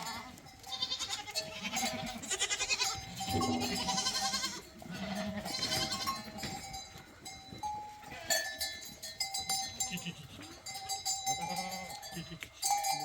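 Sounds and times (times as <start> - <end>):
goats bleating: 0.0 - 6.8, 7.9 - 8.7, 9.7 - 13.0
clanking bells: 3.1 - 13.0.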